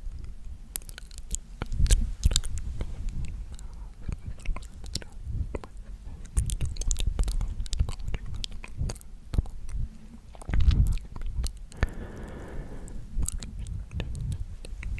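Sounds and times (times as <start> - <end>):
wet mouth clicks and smacks: 0.1 - 14.9
soft breathing: 11.7 - 13.6.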